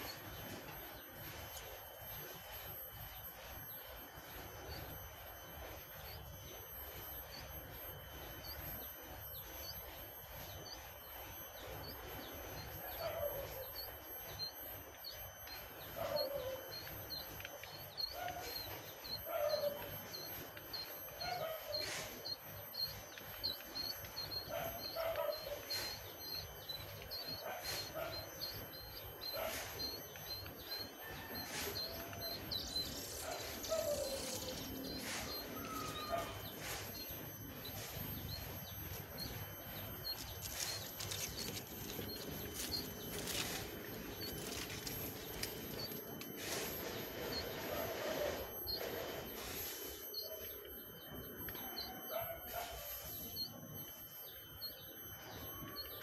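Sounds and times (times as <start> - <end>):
young birds chirping: 11.5 - 53.2.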